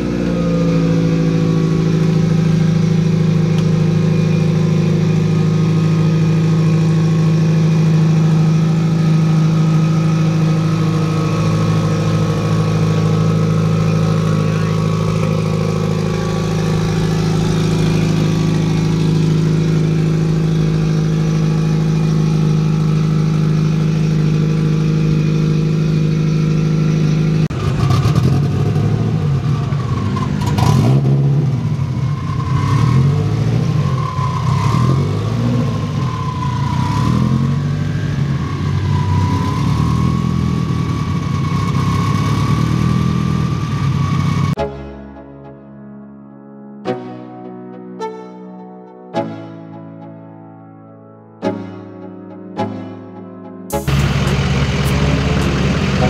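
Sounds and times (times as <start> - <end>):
car engine idling: 0.0 - 44.6, 53.7 - 56.0.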